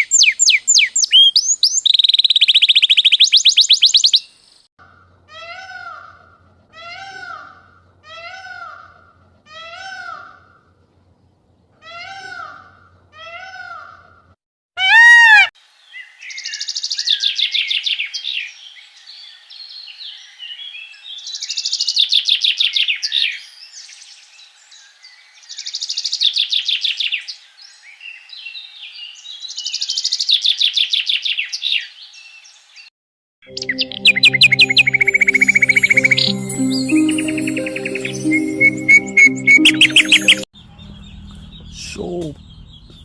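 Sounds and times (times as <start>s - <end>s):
songbird trilling: 0.0s - 4.3s, 38.9s - 43.0s
rising and falling call: 33.5s - 43.0s.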